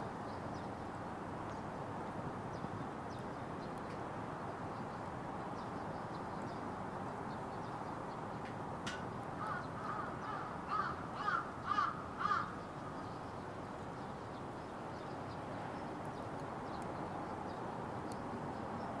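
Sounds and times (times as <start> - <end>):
crow cawing: 9.4 - 12.6.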